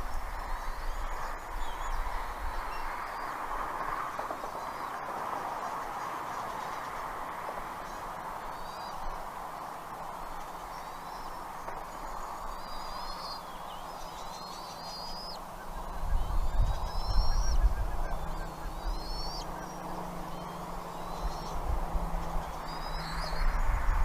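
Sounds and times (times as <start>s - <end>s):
eagle calling: 14.9s - 21.6s.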